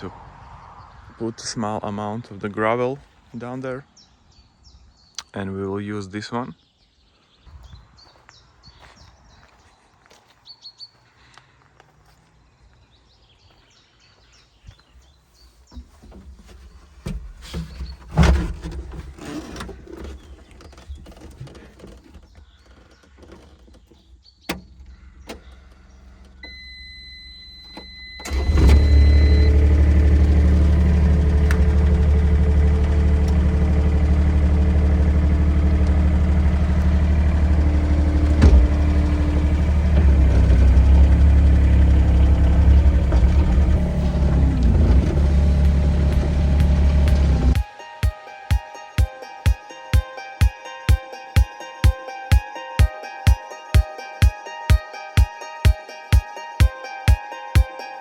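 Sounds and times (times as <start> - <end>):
faint birdsong: 0.0 - 58.0
knocks and clunks: 15.7 - 26.5, 27.6 - 47.7
diesel engine cranking and idling: 24.5 - 47.7
steady electronic beep: 26.4 - 28.3.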